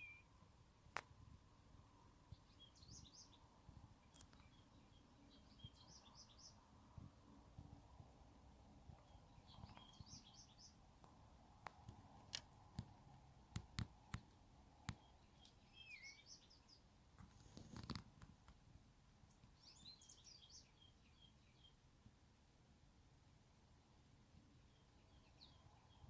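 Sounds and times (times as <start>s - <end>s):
faint bird chirps: 0.0s - 0.4s, 2.2s - 6.9s, 8.9s - 10.8s, 14.9s - 16.9s, 19.5s - 21.8s, 24.5s - 26.0s
brief rustle: 17.2s - 18.6s.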